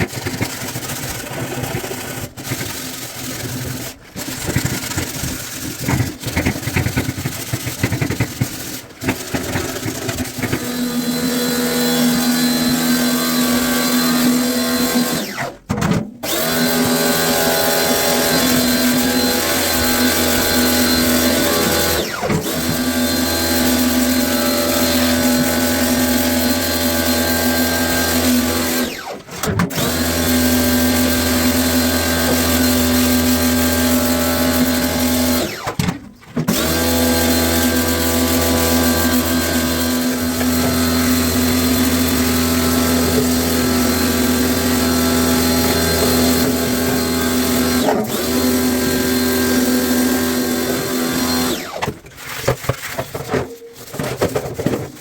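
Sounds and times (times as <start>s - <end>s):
power tool motor whine: 10.1s - 15.6s, 16.2s - 35.8s, 36.5s - 52.4s.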